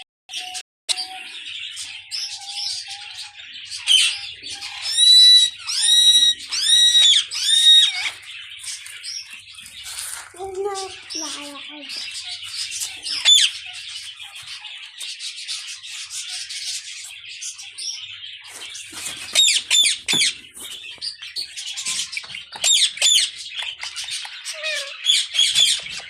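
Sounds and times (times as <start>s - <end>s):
small birds chattering: 0.3s - 26.0s
bird squawking calls: 2.2s - 8.9s, 10.6s - 13.9s, 21.6s - 26.0s.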